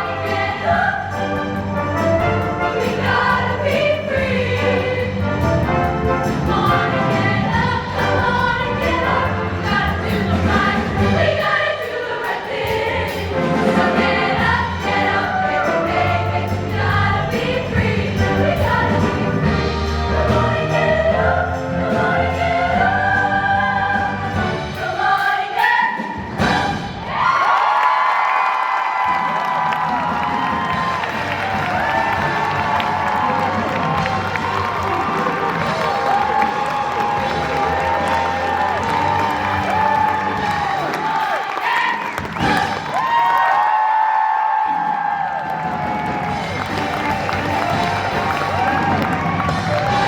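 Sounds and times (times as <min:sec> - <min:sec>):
choir singing in harmony: 0:00.0 - 0:27.3, 0:30.5 - 0:43.0
instrumental accompaniment: 0:45.8 - 0:50.0.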